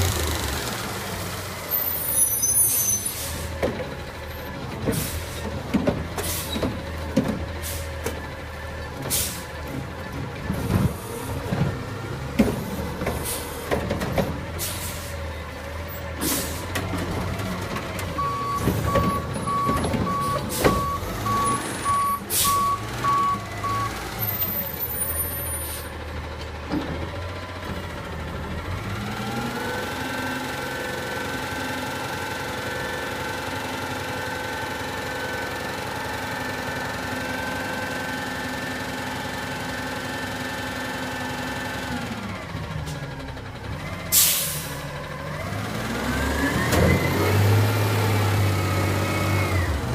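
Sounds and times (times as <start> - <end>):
diesel engine revving: 0.0 - 49.9
reversing beeper: 18.2 - 25.7.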